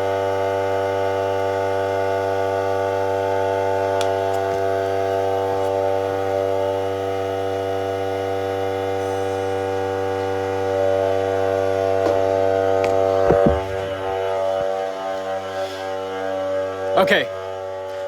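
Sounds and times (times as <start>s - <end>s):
air compressor humming: 0.0s - 18.0s
knocks: 12.8s - 14.9s.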